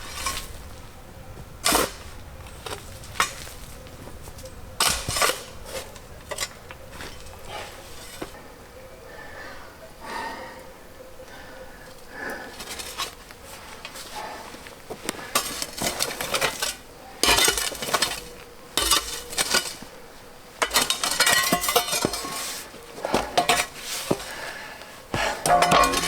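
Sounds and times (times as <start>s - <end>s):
metallic clinking and scraping: 0.0s - 0.7s, 1.6s - 8.4s, 15.3s - 19.9s, 20.5s - 24.4s, 25.2s - 26.0s.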